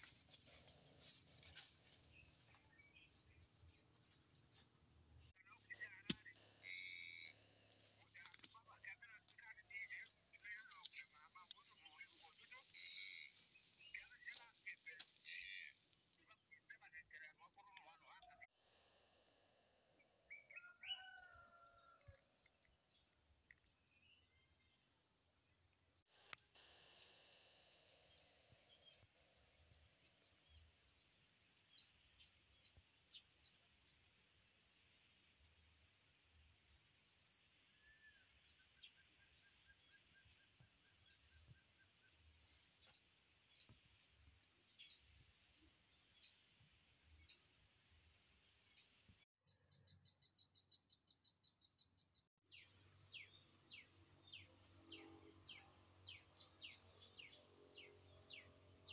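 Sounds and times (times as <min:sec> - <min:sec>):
birds chirping: 0:05.2 - 0:18.5, 0:20.0 - 0:58.9
faint bird chirps: 0:20.0 - 0:22.2
faint outdoor hiss: 0:23.0 - 0:38.2.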